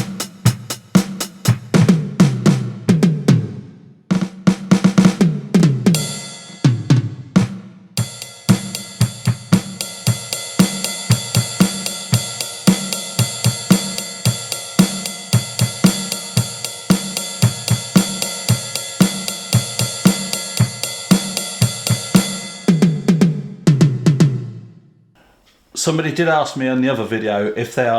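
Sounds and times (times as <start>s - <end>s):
kick and snare beat: 0.0s - 24.3s
electronic drum tom fill: 0.0s - 24.7s
cymbal wash: 8.0s - 22.9s.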